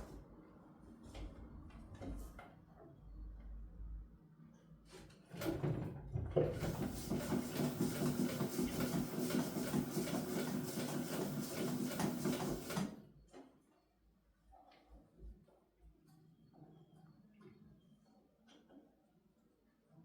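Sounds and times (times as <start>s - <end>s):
sewing machine stitching: 6.5s - 13.1s.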